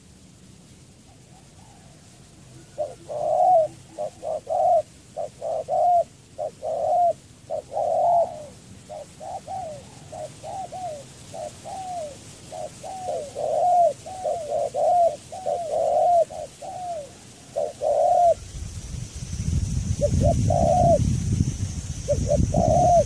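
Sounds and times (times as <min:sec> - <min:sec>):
dove cooing: 0:01.1 - 0:18.5, 0:20.0 - 0:21.2, 0:22.1 - 0:23.0.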